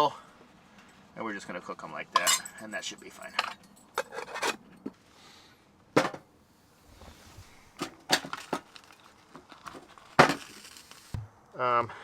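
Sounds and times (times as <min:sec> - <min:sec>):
objects knocking and clunking: 0:05.9 - 0:06.3, 0:07.7 - 0:10.6.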